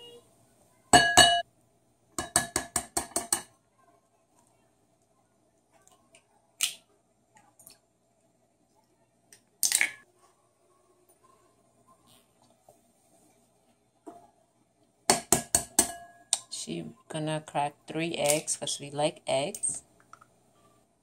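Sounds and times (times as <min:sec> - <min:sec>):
utensils and dishes clattering: 0:02.2 - 0:03.5.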